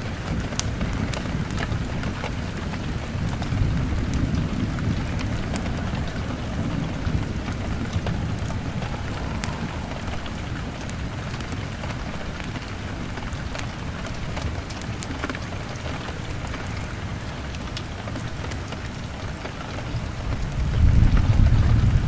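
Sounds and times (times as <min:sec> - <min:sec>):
rain on a window: 0:00.0 - 0:22.0
wood fire crackling: 0:00.0 - 0:22.0
deep rumble: 0:01.9 - 0:13.1.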